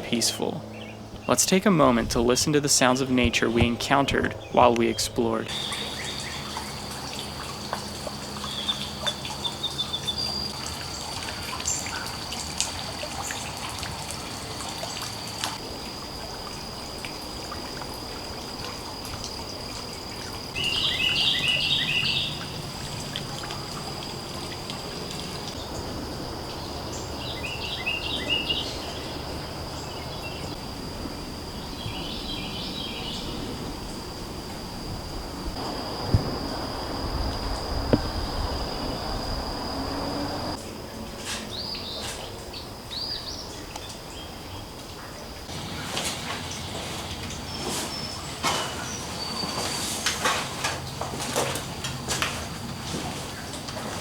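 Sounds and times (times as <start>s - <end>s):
birds chirping: 0.0s - 12.6s, 18.0s - 40.6s
high insect drone: 0.1s - 53.5s
water trickling: 4.7s - 40.6s.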